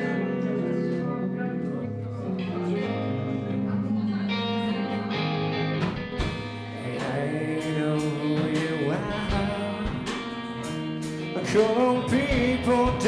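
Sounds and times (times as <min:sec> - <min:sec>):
guitar chords: 0:00.0 - 0:13.0
person singing: 0:00.0 - 0:13.0
drum and cymbal hits: 0:05.8 - 0:13.0.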